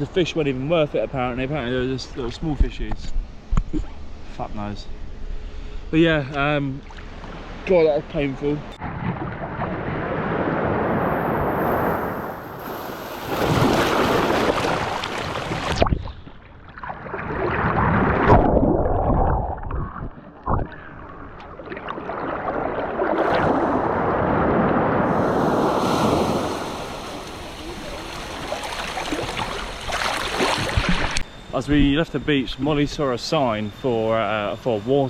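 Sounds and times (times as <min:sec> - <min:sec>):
wind rushing over microphone: 0:08.8 - 0:16.3, 0:22.6 - 0:29.8
surf washing on beach: 0:09.4 - 0:15.9, 0:22.1 - 0:31.2.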